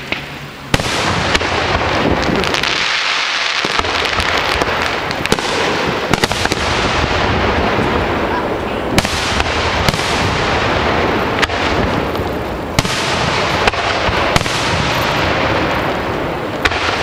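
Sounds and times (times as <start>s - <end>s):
firework shells bursting: 8.9s - 17.0s.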